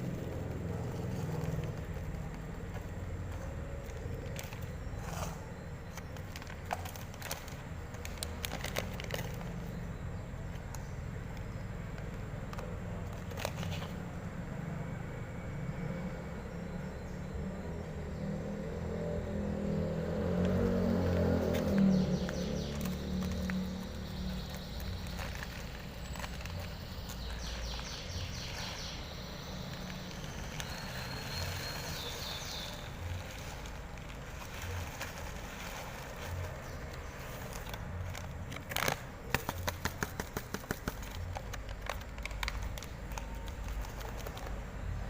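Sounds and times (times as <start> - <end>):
low traffic rumble: 0.0 - 45.0
quick run of clicks: 37.2 - 44.6.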